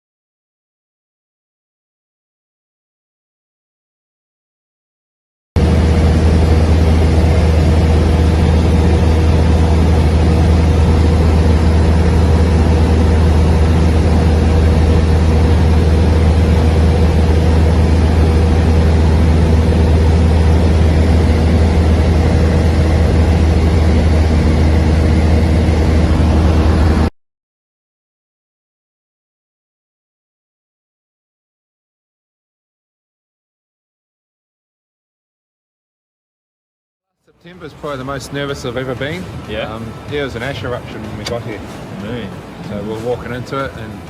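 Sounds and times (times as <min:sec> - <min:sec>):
large engine droning: 0:05.6 - 0:27.1, 0:37.3 - 0:44.0.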